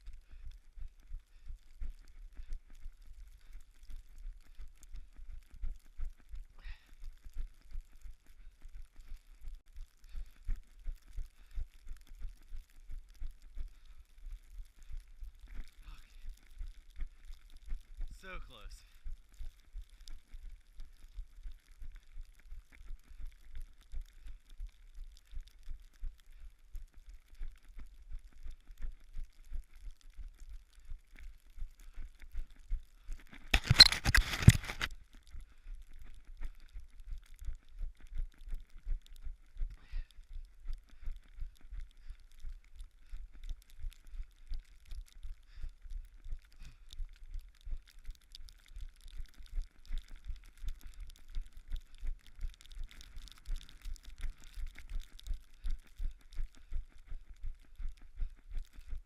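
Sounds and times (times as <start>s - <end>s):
footsteps on snow: 33.3s - 35.0s.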